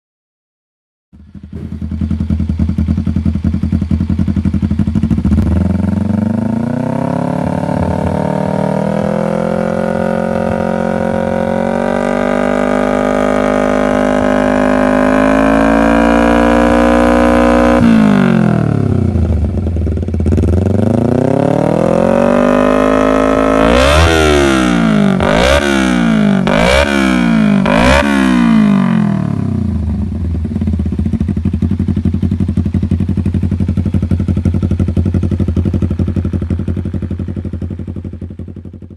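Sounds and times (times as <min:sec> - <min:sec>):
motorcycle engine revving and idling: 0:01.2 - 0:38.9.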